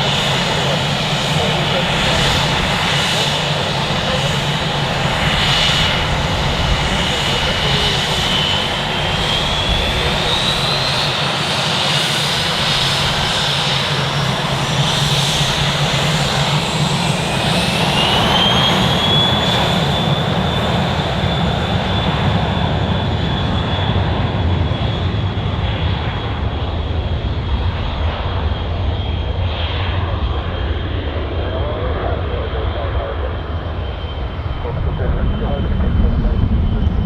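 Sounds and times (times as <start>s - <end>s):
turbine aircraft engines running: 0.0s - 37.0s.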